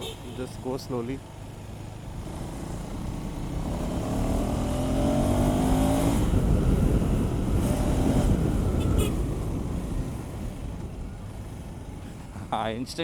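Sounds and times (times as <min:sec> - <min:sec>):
motorcycle engine accelerating: 0:01.8 - 0:12.0.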